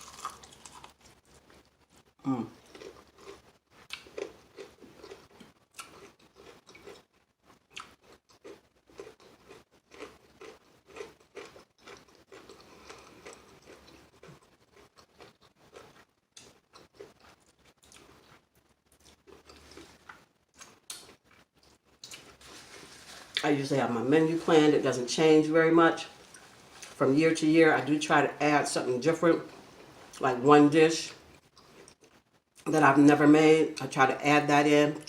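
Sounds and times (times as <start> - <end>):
crispy chicken crunching: 0.0 - 23.5.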